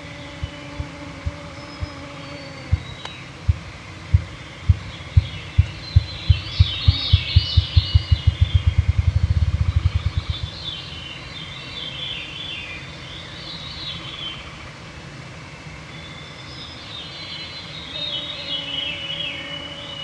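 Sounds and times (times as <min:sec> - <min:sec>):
grouse drumming thumps: 0:02.7 - 0:10.6.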